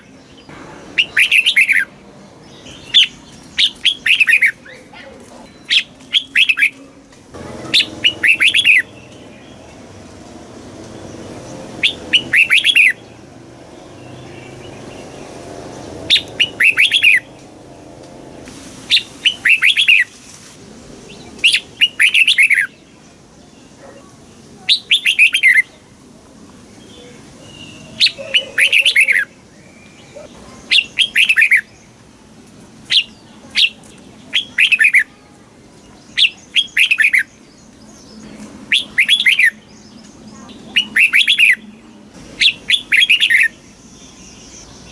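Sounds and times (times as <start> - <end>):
bulbul singing whistled phrases: 0.9 - 1.9, 2.5 - 6.8, 7.6 - 9.8, 11.8 - 13.2, 16.1 - 17.3, 18.9 - 20.1, 21.1 - 22.8, 24.6 - 25.8, 26.8 - 31.8, 32.9 - 35.2, 35.9 - 41.8, 42.4 - 44.9.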